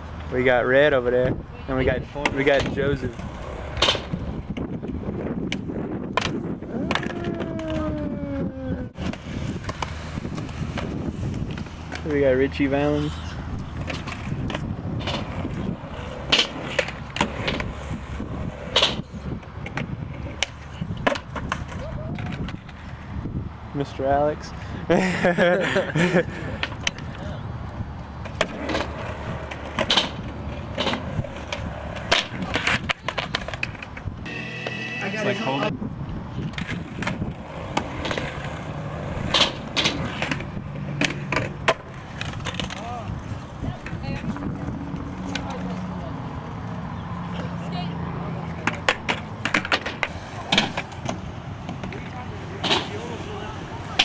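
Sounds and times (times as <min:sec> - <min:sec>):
skateboard wheels rolling on pavement: 0:01.9 - 0:08.0, 0:09.0 - 0:23.3, 0:26.0 - 0:35.7, 0:36.4 - 0:46.9, 0:48.5 - 0:54.0.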